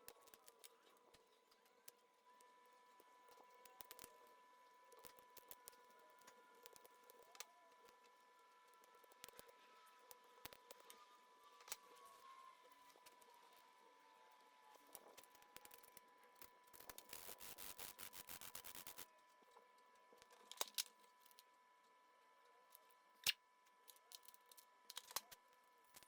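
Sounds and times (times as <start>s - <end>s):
faint steady high tone: 0.8s - 14.9s.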